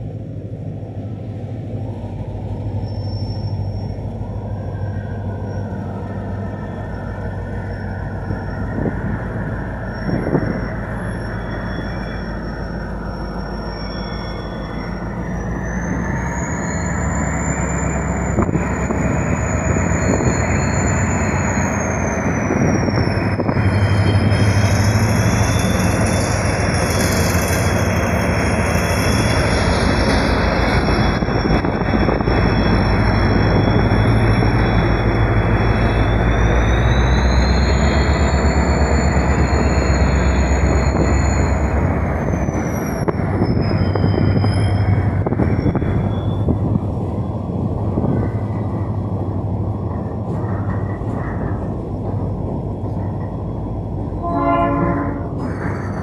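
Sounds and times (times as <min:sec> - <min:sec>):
diesel locomotive running: 0:00.0 - 0:56.0
steel squealing on steel: 0:02.8 - 0:47.4.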